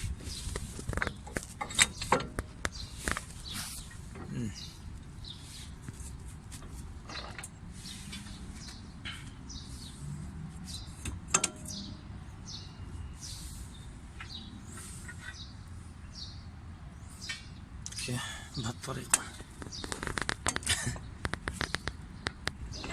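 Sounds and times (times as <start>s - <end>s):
small birds chirping: 0.0s - 22.9s.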